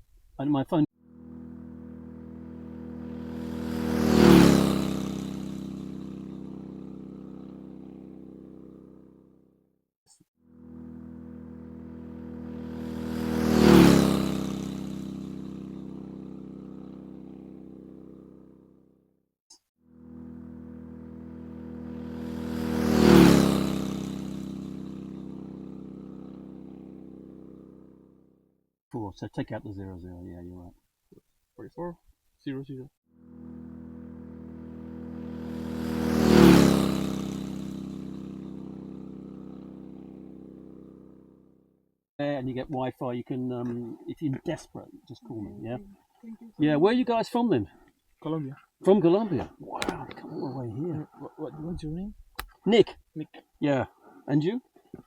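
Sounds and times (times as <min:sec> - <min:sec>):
vehicle driving past: 0:01.0 - 0:09.5, 0:10.5 - 0:19.0, 0:19.9 - 0:28.4, 0:33.2 - 0:41.7
engine idling: 0:04.7 - 0:09.4, 0:14.1 - 0:18.8, 0:23.5 - 0:28.2.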